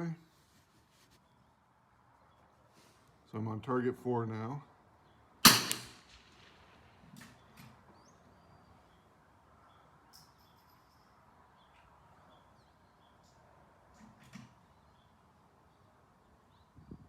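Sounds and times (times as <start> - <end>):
birds chirping: 1.1 - 17.0
rifle shot: 5.4 - 7.0.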